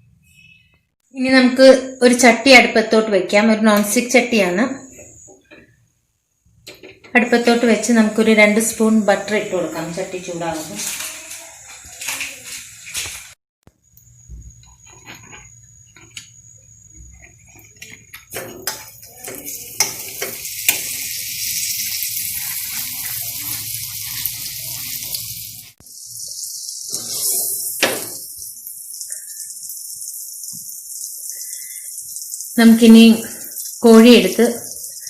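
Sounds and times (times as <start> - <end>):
butter sizzling in a pan: 7.2 - 35.0.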